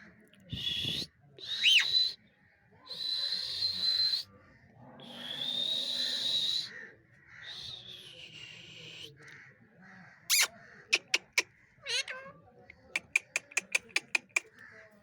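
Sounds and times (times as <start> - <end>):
parrot screeching: 10.3 - 12.4.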